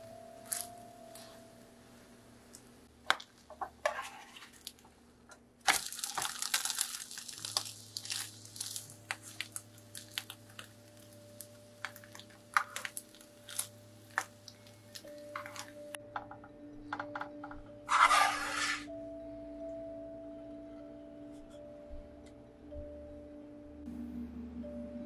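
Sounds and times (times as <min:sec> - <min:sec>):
egg and bread frying in butter: 0:05.6 - 0:15.7
metal spatula scraping a pan: 0:17.9 - 0:18.9.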